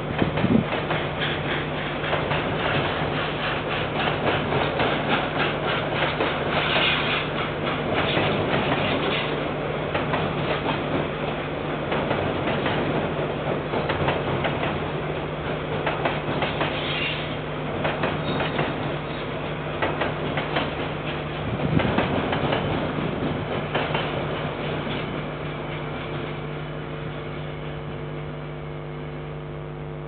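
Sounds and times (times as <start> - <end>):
train rumble: 0.0 - 28.9
wheels clicking over rail joints: 0.1 - 26.0
low hum: 26.3 - 30.0.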